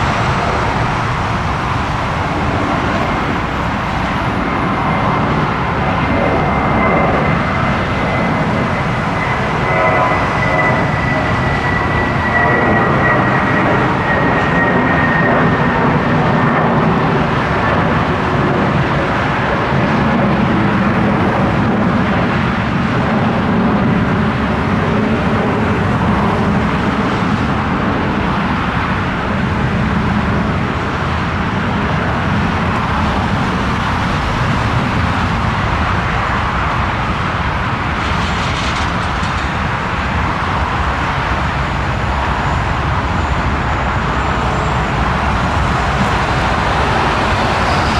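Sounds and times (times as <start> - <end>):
jet engines roaring: 0.0 - 47.9
faint high whine: 40.8 - 47.9.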